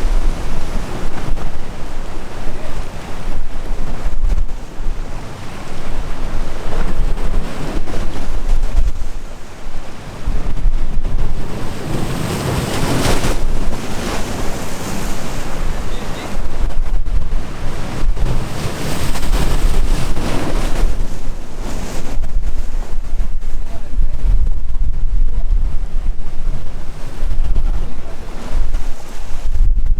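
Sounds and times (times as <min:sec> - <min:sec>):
sea waves breaking: 0:00.0 - 0:29.9
wind buffeting microphone: 0:00.0 - 0:29.9.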